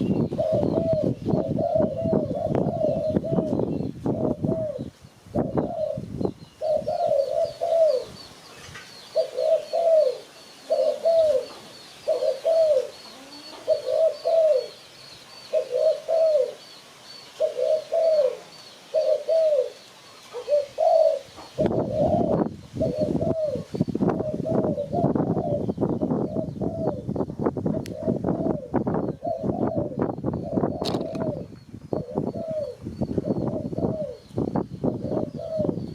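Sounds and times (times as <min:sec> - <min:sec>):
dove cooing: 0:00.0 - 0:08.2, 0:09.1 - 0:16.7, 0:17.3 - 0:35.9
faint high chirping: 0:05.6 - 0:24.2.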